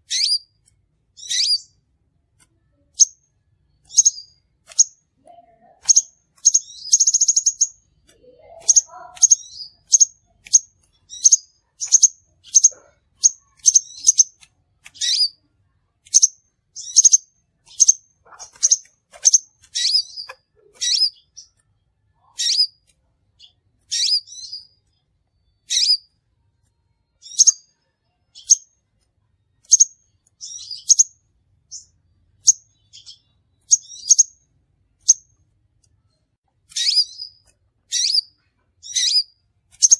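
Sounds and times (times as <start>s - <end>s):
sunbird chips and trill: 5.8s - 15.4s, 36.7s - 39.9s.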